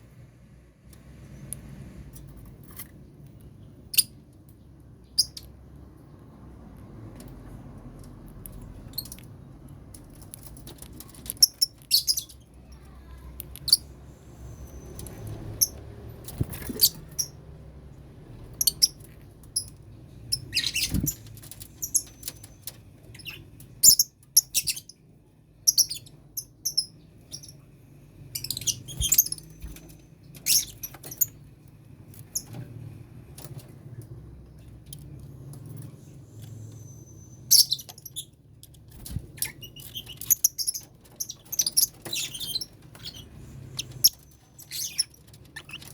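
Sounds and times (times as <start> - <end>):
birds chirping: 10.1 - 17.6, 18.3 - 33.9, 34.5 - 45.9.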